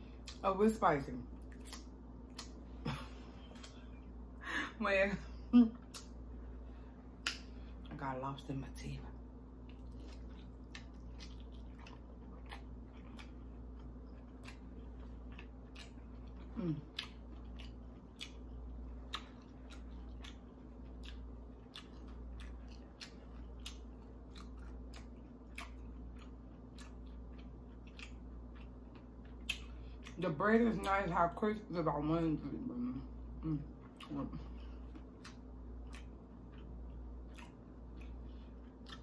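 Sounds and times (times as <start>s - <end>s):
steady low hum: 0.0s - 39.0s
chewing crunchy fried food: 1.2s - 4.3s, 8.8s - 31.7s, 33.1s - 39.0s
person humming mm: 16.6s - 16.9s.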